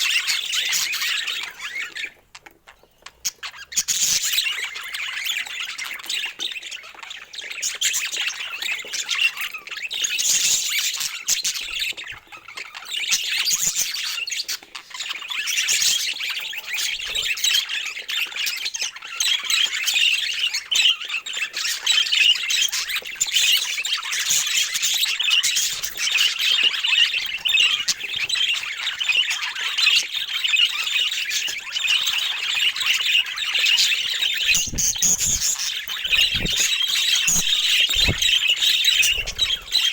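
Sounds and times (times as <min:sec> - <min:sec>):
budgerigars chattering: 0:23.9 - 0:39.9.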